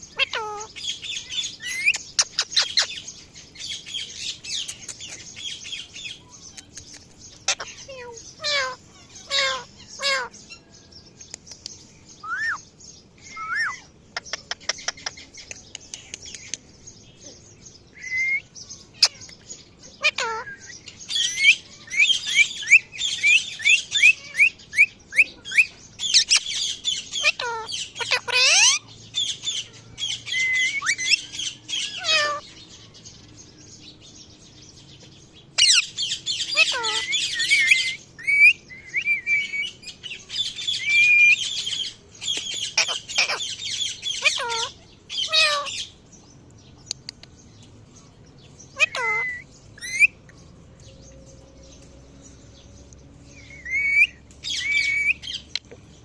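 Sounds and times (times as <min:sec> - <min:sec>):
parrot chirping and squawking: 0:00.0 - 0:10.7, 0:13.4 - 0:15.2, 0:19.0 - 0:19.4, 0:20.0 - 0:32.4, 0:35.6 - 0:46.0, 0:48.7 - 0:50.2, 0:53.3 - 0:55.8.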